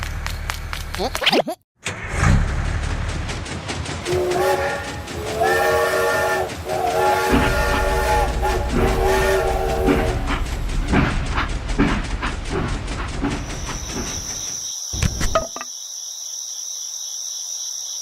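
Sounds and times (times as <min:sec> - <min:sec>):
multi-tone horn blasts: 0:04.1 - 0:11.0.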